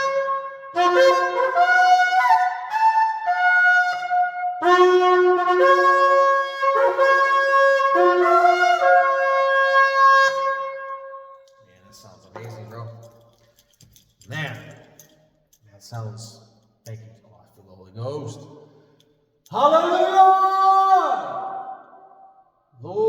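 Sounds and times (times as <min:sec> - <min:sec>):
shofar blasts: 0:00.0 - 0:11.4.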